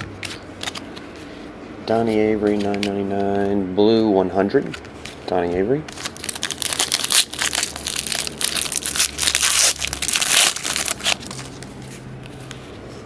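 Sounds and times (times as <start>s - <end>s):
foil wrapper crinkling and tearing: 5.9s - 11.7s.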